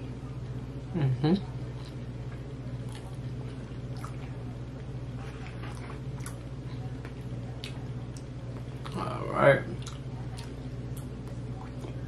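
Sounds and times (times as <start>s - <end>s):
steady low hum: 0.0s - 12.0s
person chewing food: 1.7s - 9.0s, 9.7s - 12.0s.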